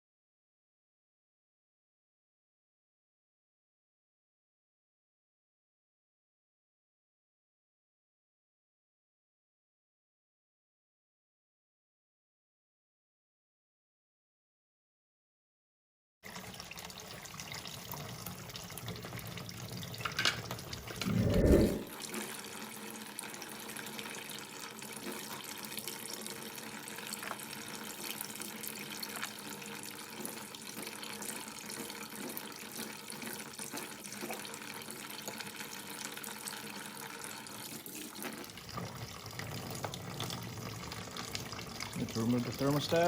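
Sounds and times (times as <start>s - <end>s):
water running: 23.2s - 43.0s.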